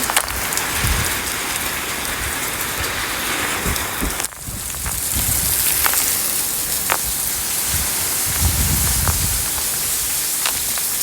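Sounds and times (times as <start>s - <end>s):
steady rain hissing: 0.0s - 11.0s
drops ticking on a surface: 3.7s - 7.3s, 10.4s - 11.0s.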